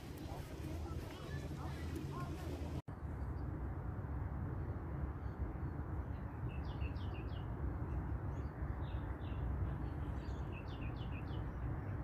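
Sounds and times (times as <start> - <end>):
bird chirping: 6.0 - 12.0.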